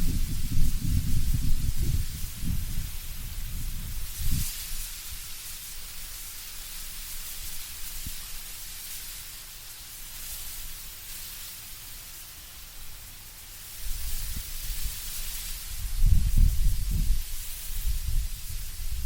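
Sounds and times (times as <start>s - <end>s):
low wind gust rumble: 0.0s - 5.2s, 13.8s - 19.0s
leaves rustling in wind: 0.0s - 19.0s.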